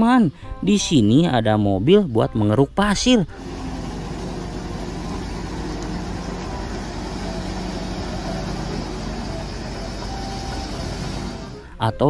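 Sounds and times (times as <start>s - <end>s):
diesel engine running: 3.3s - 11.7s.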